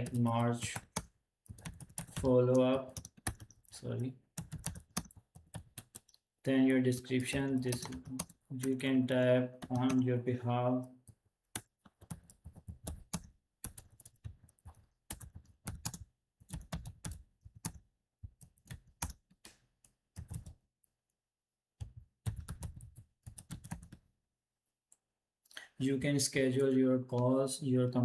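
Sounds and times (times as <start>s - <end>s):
typing on computer keyboard: 0.0s - 6.2s, 7.2s - 10.0s, 11.1s - 19.3s, 20.2s - 20.6s, 21.8s - 24.0s.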